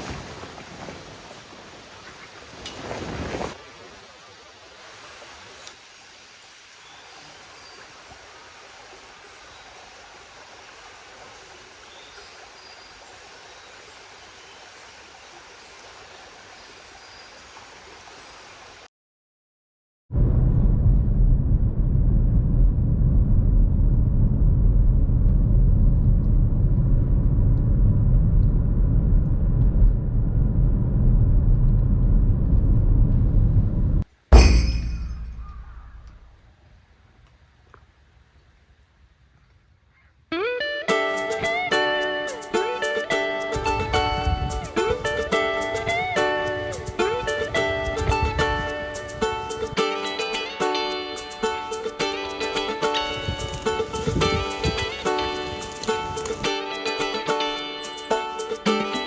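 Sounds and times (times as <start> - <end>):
soft wind rush outdoors: 20.2 - 56.8
strong wind buffeting microphone: 43.6 - 49.5, 53.2 - 55.0.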